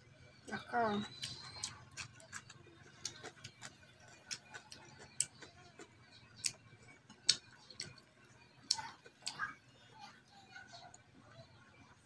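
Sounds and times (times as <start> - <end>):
chewing clicks and smacks: 1.0 - 9.6.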